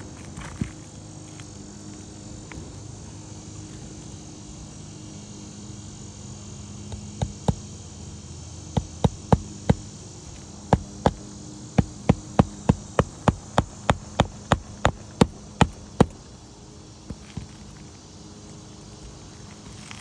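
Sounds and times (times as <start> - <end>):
hammer blows on shingle roof: 6.9 - 16.4, 17.0 - 17.8.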